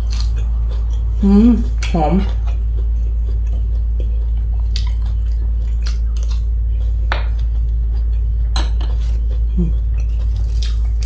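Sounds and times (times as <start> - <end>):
person chewing food: 0.0 - 11.0
steady low hum: 0.0 - 11.0
wet mouth clicks: 3.3 - 6.5.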